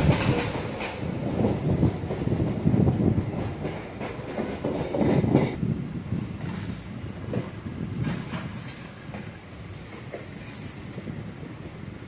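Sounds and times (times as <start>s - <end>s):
wheels clattering over rail joints: 0.0s - 5.6s
train running rumble: 0.0s - 11.4s.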